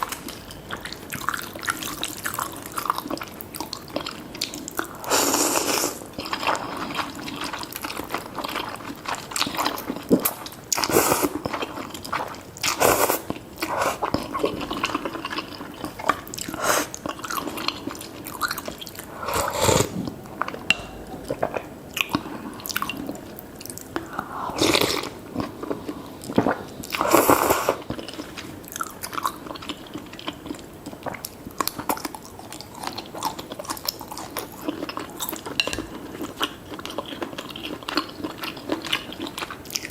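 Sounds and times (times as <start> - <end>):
slurping noodles: 4.8 - 7.5, 12.7 - 15.1, 19.0 - 20.3, 26.3 - 28.2.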